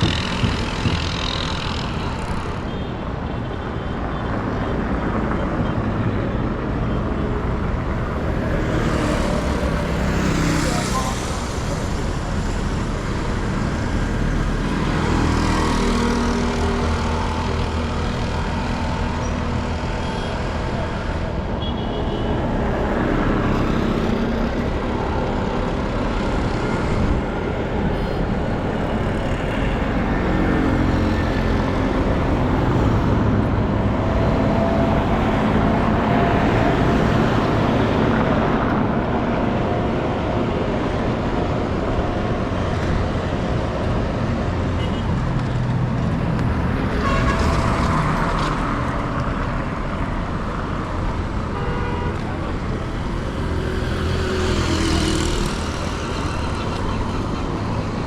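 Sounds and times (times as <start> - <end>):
street traffic passing: 0.0 - 58.0.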